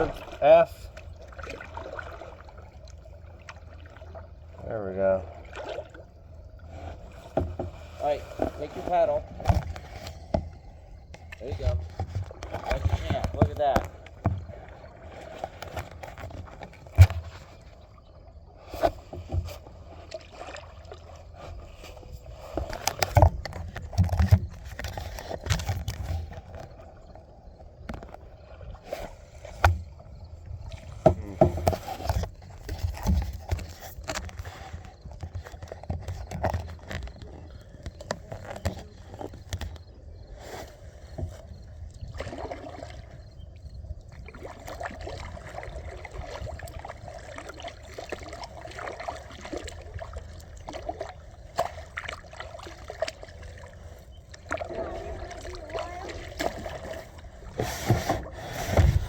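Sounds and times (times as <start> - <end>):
paddle strokes in water: 0.0 - 59.0
water sloshing against a board: 0.0 - 59.0
wind rumble on microphone: 21.2 - 47.6, 54.2 - 59.0.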